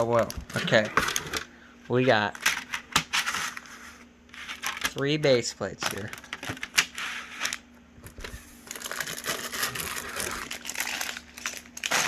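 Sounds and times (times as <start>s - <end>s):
plastic bags crinkling: 8.3s - 12.0s.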